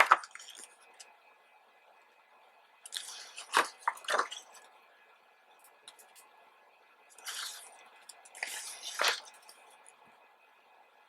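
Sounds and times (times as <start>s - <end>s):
book pages rustling and turning: 2.9s - 4.7s, 7.2s - 9.7s.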